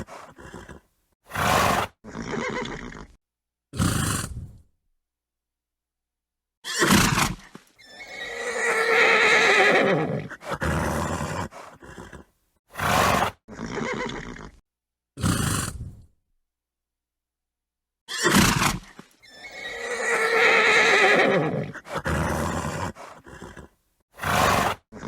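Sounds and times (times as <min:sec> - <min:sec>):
horse snorting: 0:00.0 - 0:03.2, 0:03.8 - 0:04.6, 0:06.8 - 0:14.6, 0:15.2 - 0:16.1, 0:18.2 - 0:25.0
horse neighing: 0:01.4 - 0:03.2, 0:06.7 - 0:14.6, 0:18.1 - 0:24.8.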